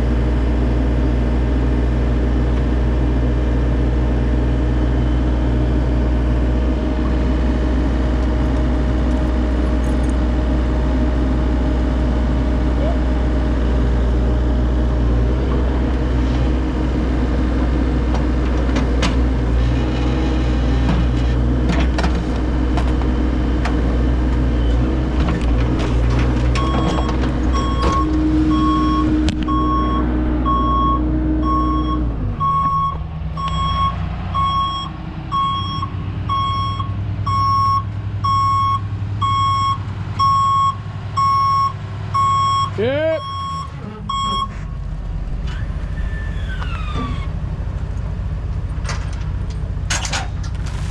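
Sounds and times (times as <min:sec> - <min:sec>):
heavy diesel engine running: 0:00.0 - 0:50.9
backup alarm beeping: 0:26.6 - 0:44.6
metal clanks: 0:48.7 - 0:50.9.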